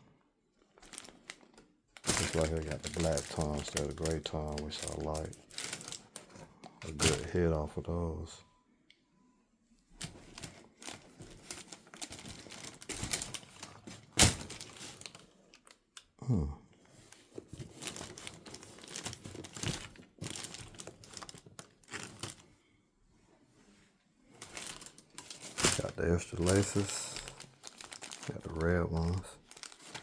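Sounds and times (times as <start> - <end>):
paper and plastic crinkling: 0.6 - 7.5, 10.0 - 15.8, 17.0 - 22.5, 24.3 - 30.0.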